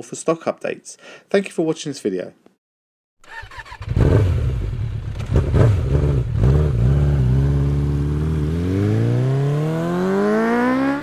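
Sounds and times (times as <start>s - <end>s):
motorcycle engine accelerating: 3.2s - 11.0s.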